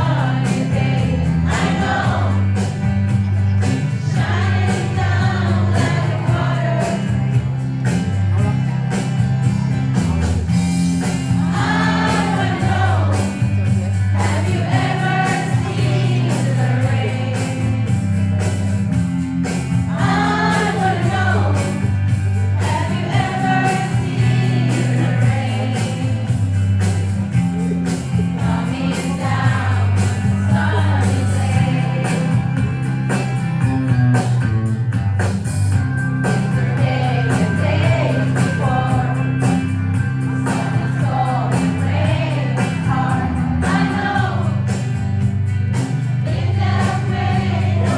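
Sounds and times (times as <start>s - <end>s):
group of students singing: 0.0s - 2.7s, 4.0s - 7.4s, 11.2s - 18.0s, 19.9s - 22.0s, 22.6s - 26.4s, 28.4s - 32.5s, 36.5s - 39.5s, 40.4s - 44.8s, 46.2s - 47.9s
backing track with bass line: 0.0s - 47.9s.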